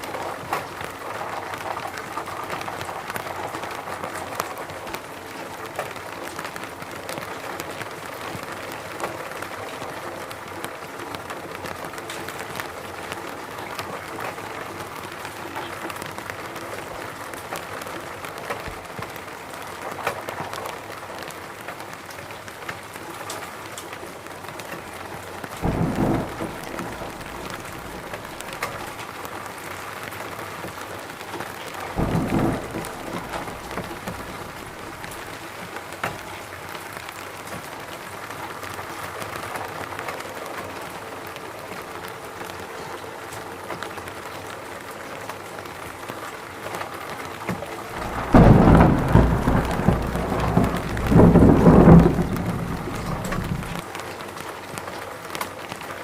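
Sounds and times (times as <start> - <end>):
rain falling in a forest: 0.0 - 56.0
low rumbles of thunder: 25.6 - 29.2, 31.9 - 35.4, 48.0 - 53.8.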